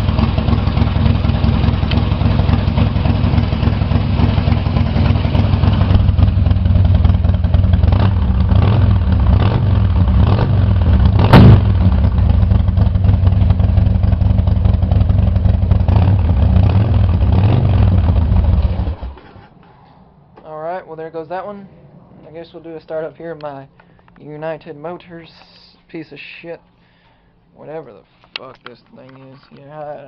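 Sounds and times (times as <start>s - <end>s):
motorcycle engine idling: 0.0s - 19.2s
sharp engine crack: 7.8s - 12.2s.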